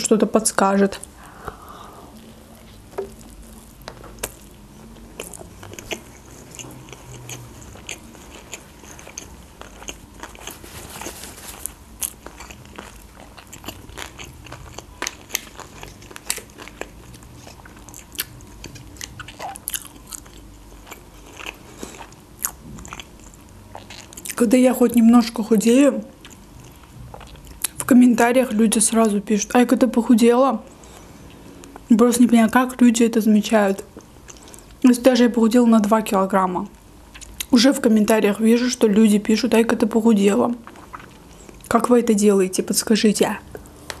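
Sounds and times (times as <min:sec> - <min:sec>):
wet chewing with mouth clicks: 0:01.0 - 0:24.4, 0:26.2 - 0:27.9, 0:37.1 - 0:37.6, 0:40.6 - 0:41.7.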